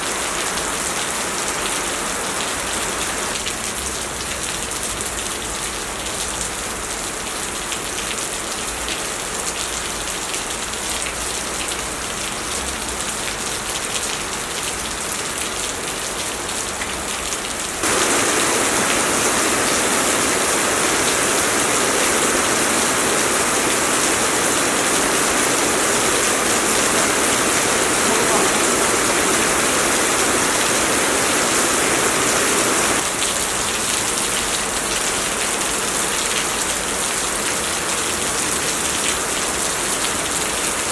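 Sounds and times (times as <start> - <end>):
heavy rain pouring: 10.1 - 40.9.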